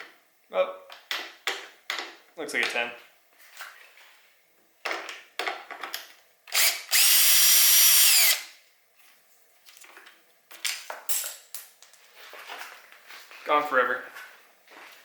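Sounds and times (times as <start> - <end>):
power drill whirring: 6.5 - 8.5.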